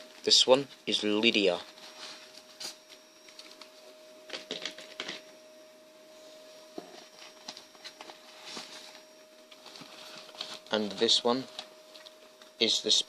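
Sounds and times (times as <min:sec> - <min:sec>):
faint steady hum: 0:00.0 - 0:13.0
plastic packaging rustling: 0:06.9 - 0:12.2.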